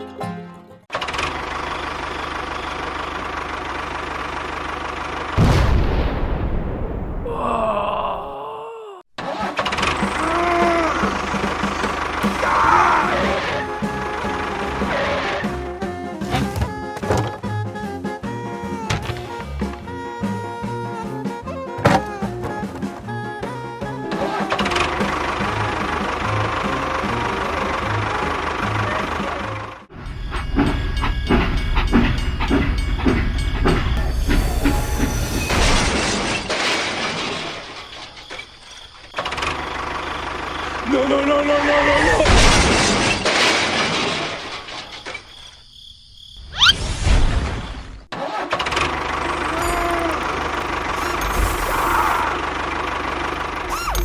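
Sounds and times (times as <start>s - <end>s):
small engine running: 0.9s - 5.4s, 9.2s - 15.7s, 24.0s - 29.9s, 39.2s - 41.5s, 48.5s - 54.0s
machine knocking clatter: 11.0s - 12.4s, 30.3s - 34.4s.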